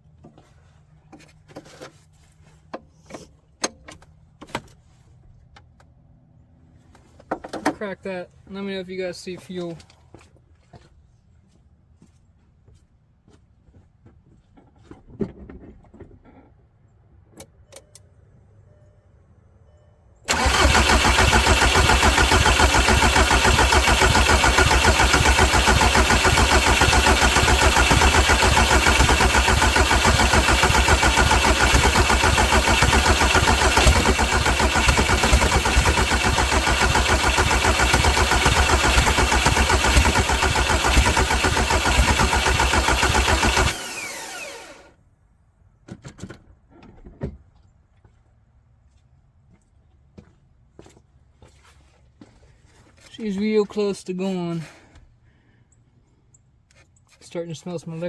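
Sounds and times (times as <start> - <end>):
starter cranking diesel engine: 20.3 - 44.9.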